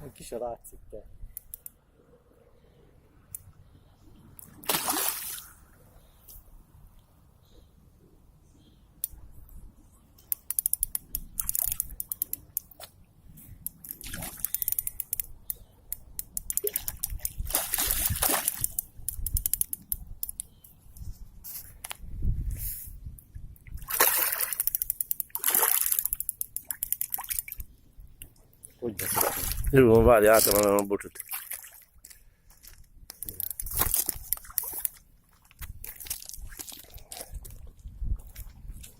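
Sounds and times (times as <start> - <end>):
sharp clicks and snaps: 1.3 - 1.8, 10.2 - 12.9, 13.6 - 17.5, 18.4 - 20.7, 24.4 - 28.8, 33.1 - 36.4
water splashing: 4.5 - 5.6, 16.6 - 18.7, 23.8 - 24.6, 25.4 - 27.6, 29.0 - 29.8.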